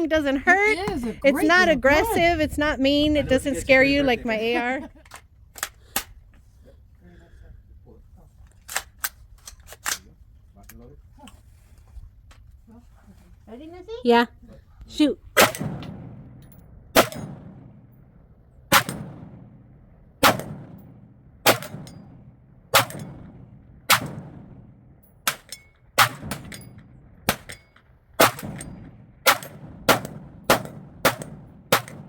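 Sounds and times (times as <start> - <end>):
rifle shots: 15.4 - 32.0.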